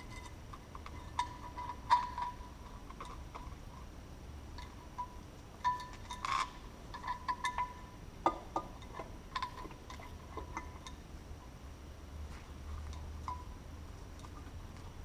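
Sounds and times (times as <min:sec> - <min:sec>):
metal tools clinking: 0:00.0 - 0:03.6, 0:04.6 - 0:07.9.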